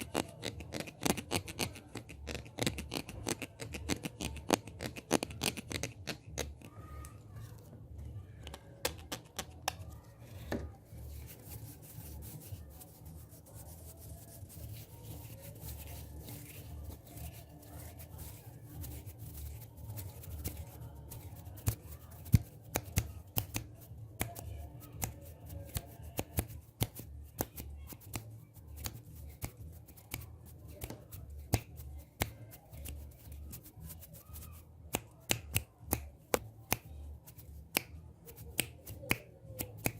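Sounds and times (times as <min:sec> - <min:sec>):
hands rubbing: 0:10.9 - 0:39.9
sharp clicks and taps: 0:13.6 - 0:34.1, 0:34.9 - 0:39.9.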